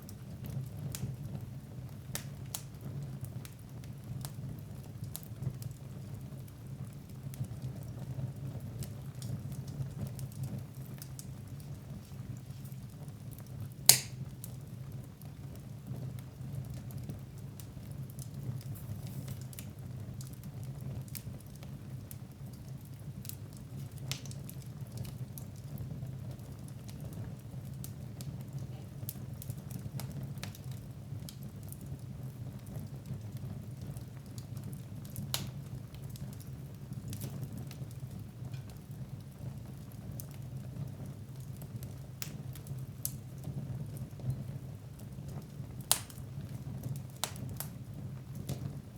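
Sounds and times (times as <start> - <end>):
fire crackling: 0.0 - 48.9
wood fire burning: 0.0 - 48.9
loud sharp pop of fire: 13.8 - 14.4, 45.9 - 46.2, 47.2 - 47.7.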